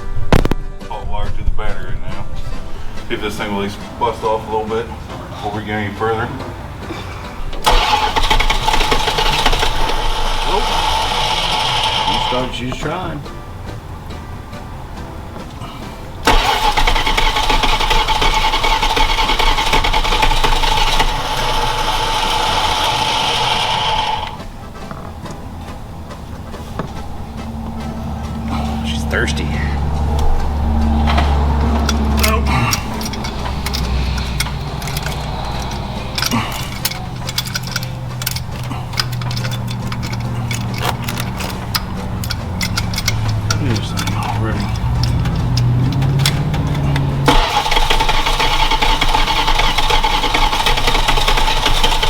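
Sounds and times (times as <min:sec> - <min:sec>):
engine running with whine: 0:06.4 - 0:52.0
truck engine starter cranking: 0:07.3 - 0:52.0
steady low hum: 0:21.0 - 0:47.4
metallic clicks and rattles of tools: 0:30.2 - 0:52.0.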